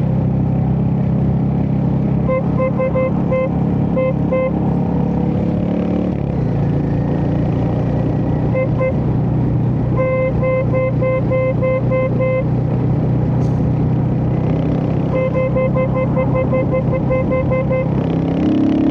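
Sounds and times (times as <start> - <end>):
motorcycle engine running: 0.0 - 18.9
short beeps: 15.1 - 17.9.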